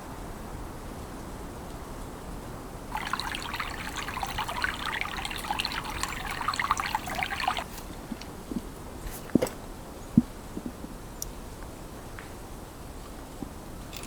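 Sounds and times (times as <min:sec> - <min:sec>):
water pouring and trickling: 0:02.9 - 0:07.9.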